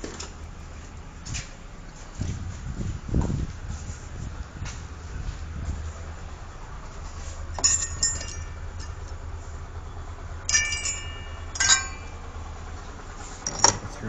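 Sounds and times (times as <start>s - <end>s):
steady low hum: 0.0s - 14.0s
metal parts clinking: 7.6s - 9.0s, 10.5s - 12.2s, 13.4s - 13.8s.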